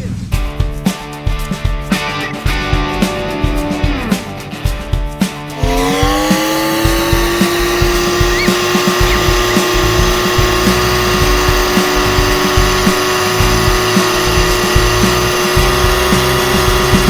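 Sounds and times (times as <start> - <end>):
off-road vehicle engine revving high: 5.6 - 17.0.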